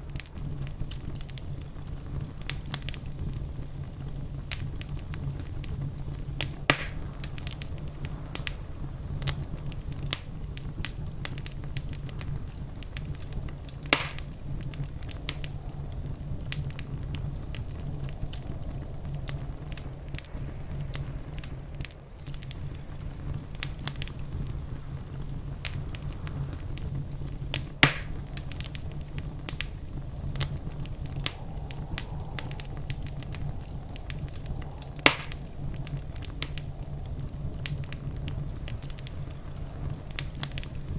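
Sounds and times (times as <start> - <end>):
loud fire pops: 0.0 - 40.9
wood fire crackling: 0.0 - 40.9
low rumble: 11.9 - 40.9.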